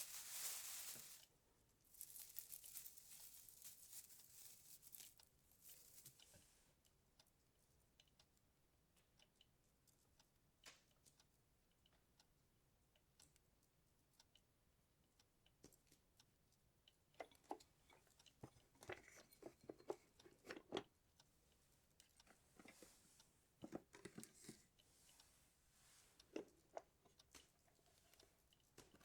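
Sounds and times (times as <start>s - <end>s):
soft hissing rustle: 0.0s - 1.3s, 1.9s - 6.6s, 24.3s - 26.3s
crinkly rustles: 0.0s - 6.5s
small clicks and taps: 7.9s - 12.3s, 15.5s - 25.3s.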